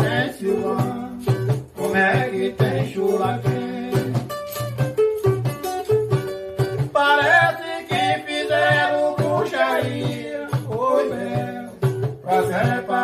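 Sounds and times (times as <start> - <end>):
plucked strings: 3.4 - 8.2
person singing: 6.9 - 13.0.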